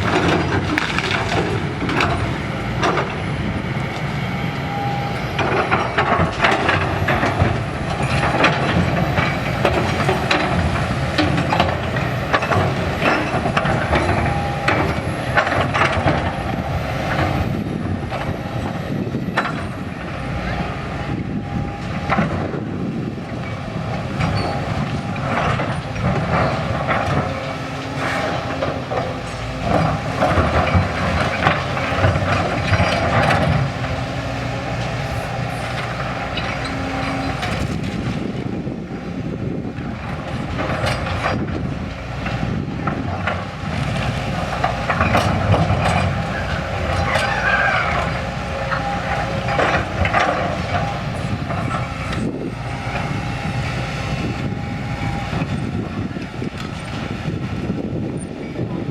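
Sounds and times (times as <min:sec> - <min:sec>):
rattling and clanking: 0:00.0 - 0:03.6, 0:05.4 - 0:19.9, 0:23.4 - 0:38.8
heavy machine running: 0:00.0 - 0:58.9.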